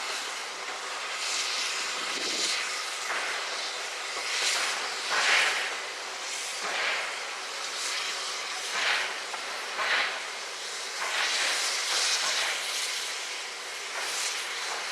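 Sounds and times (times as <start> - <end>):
steam hissing: 0.0 - 14.9
steam locomotive chuffing: 0.0 - 14.9.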